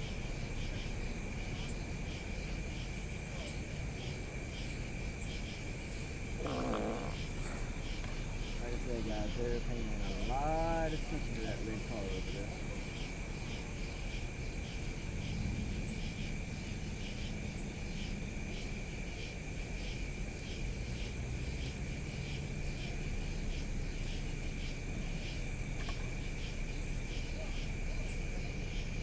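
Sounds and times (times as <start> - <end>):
low steady rumble: 0.0 - 19.7
insects chirping: 0.0 - 29.0.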